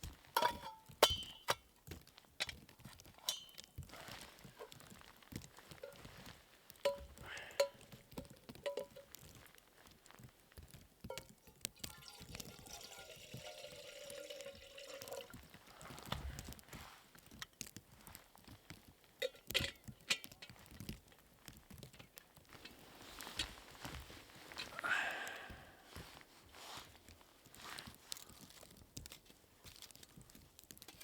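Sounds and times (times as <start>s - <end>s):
light metallic clinks: 0.4s - 1.6s, 3.2s - 5.0s, 6.7s - 9.4s
liquid poured into container: 11.7s - 15.5s.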